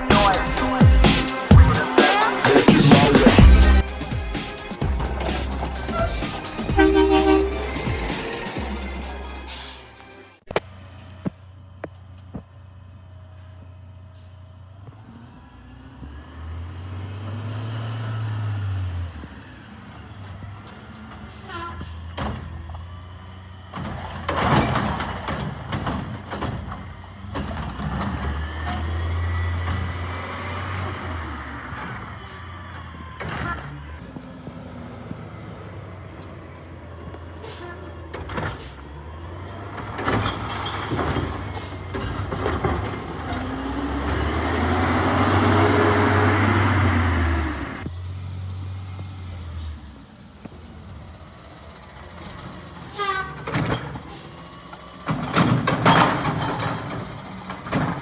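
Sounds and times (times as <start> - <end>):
garbage truck engine revving: 0.0 - 9.9, 14.8 - 49.8
bins banging and clattering: 4.2 - 8.8, 23.7 - 30.0, 39.6 - 44.3, 53.2 - 54.2, 55.0 - 58.0.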